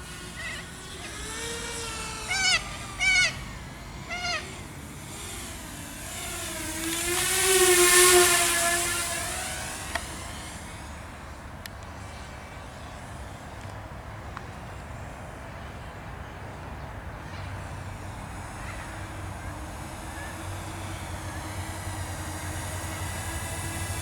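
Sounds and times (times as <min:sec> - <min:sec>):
drone propellers buzzing: 0:00.0 - 0:24.0
low steady rumble: 0:17.5 - 0:24.0.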